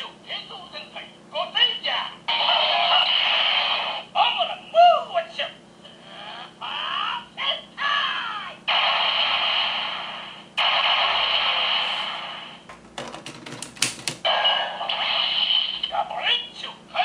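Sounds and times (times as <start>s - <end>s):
toy hissing sound effects: 14.7s - 15.9s.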